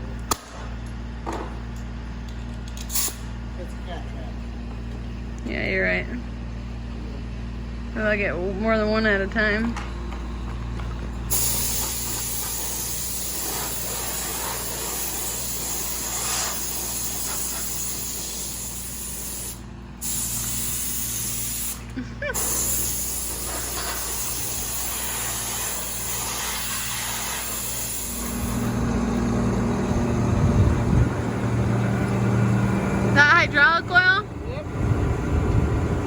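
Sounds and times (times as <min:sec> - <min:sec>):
low machine hum: 0:00.0 - 0:36.0
air blow gun hissing: 0:02.9 - 0:03.3, 0:11.3 - 0:29.0.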